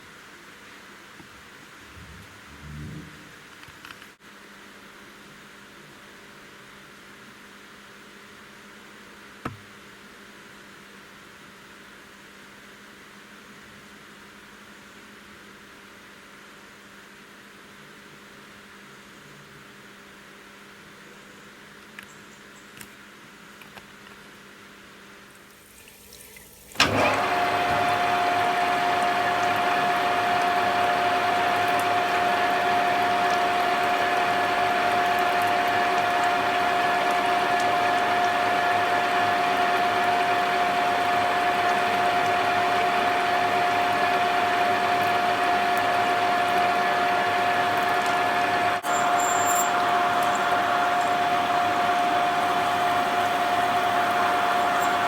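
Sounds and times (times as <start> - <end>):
machine whine: 26.7 - 55.0.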